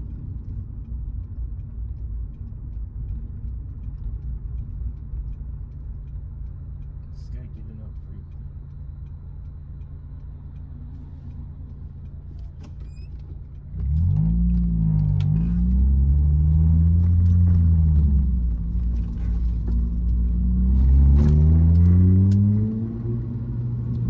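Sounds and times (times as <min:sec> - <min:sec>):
car engine revving: 0:13.5 - 0:24.0.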